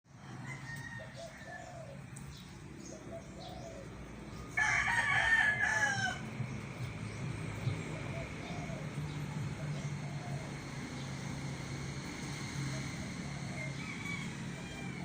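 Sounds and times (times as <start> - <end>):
rooster crowing: 0.1 - 2.0, 4.5 - 6.5, 13.2 - 15.0
steady low hum: 0.1 - 15.0.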